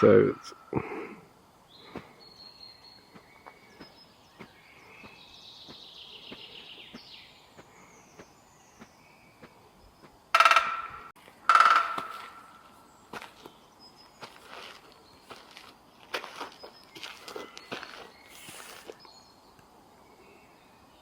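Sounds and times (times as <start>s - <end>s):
faint songbird song: 0.0s - 21.0s
woodpecker pecking at wood: 10.4s - 12.5s.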